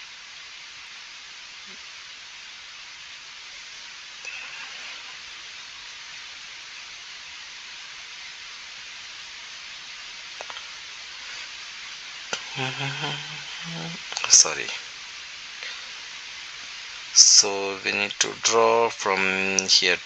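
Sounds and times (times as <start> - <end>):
recording hiss: 0.0 - 20.0
faint clicks: 10.4 - 10.7
person humming: 12.4 - 14.0.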